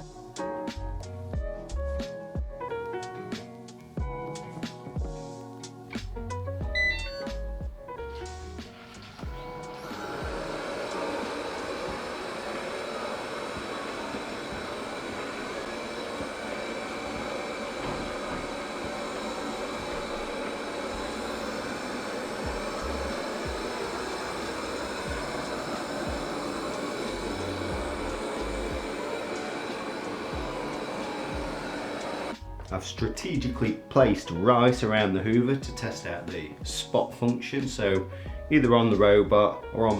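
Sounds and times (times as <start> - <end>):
robot vacuum cleaner whirring: 8.2 - 32.7.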